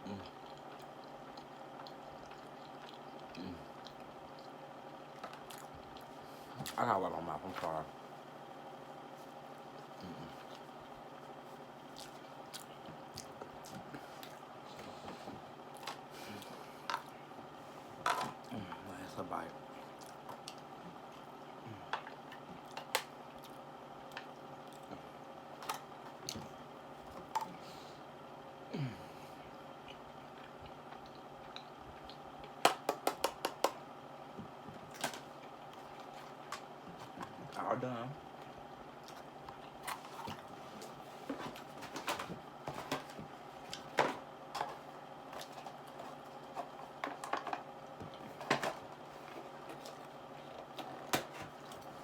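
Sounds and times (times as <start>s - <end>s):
mouth chewing soft food: 0.0s - 6.8s, 11.8s - 14.5s, 19.7s - 25.2s, 29.4s - 32.6s.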